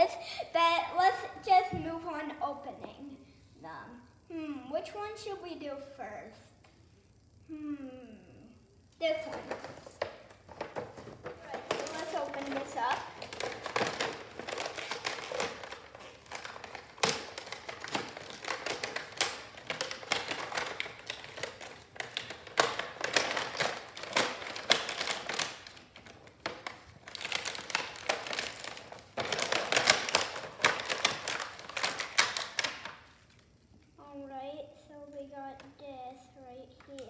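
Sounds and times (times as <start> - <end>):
cardboard packaging rustling: 9.3 - 33.5.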